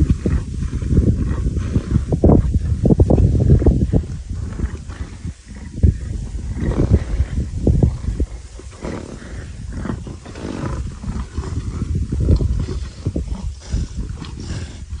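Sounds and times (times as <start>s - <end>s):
leopards growling: 0.0s - 15.0s.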